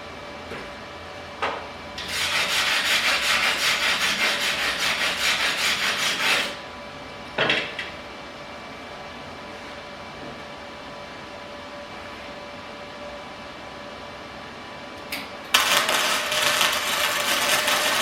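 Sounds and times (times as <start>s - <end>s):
welding arc crackle: 15.5s - 18.0s
welding arc strike: 15.5s - 18.0s.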